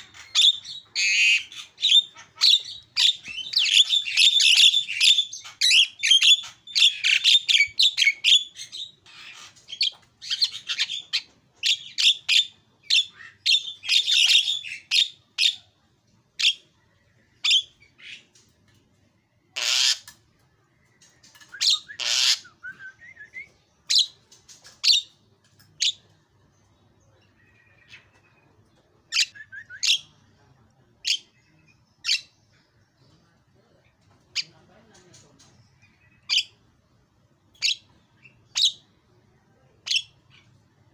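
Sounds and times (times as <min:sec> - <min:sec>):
bird chattering whistles and chirps: 0:00.0 - 0:15.6, 0:21.2 - 0:25.2, 0:29.1 - 0:30.2, 0:31.0 - 0:32.4
bird harsh squawks: 0:19.6 - 0:20.1, 0:21.6 - 0:22.6.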